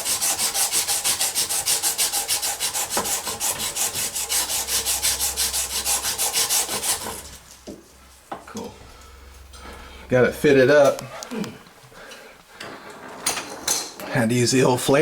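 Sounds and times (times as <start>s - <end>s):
abrasive scrubbing copper tube: 0.0s - 7.8s.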